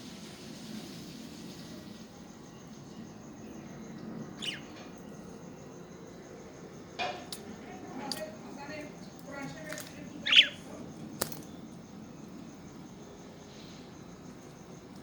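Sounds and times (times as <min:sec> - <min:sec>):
low background hum: 0:00.1 - 0:15.0
budgerigars calling: 0:04.4 - 0:04.7, 0:10.2 - 0:10.7.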